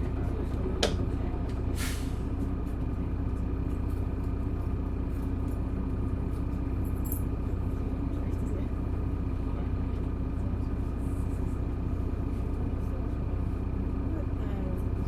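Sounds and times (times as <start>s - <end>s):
bus diesel engine running: 0.0s - 15.0s
air brake hiss: 1.7s - 2.3s.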